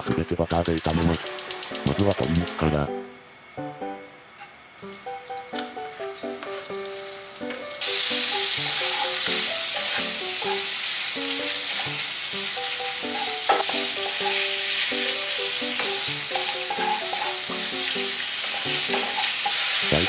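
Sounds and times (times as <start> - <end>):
light background music: 0.0 - 20.0
chicken sizzling in a frying pan: 0.4 - 2.8, 5.6 - 20.0
spatula stirring: 7.9 - 20.0.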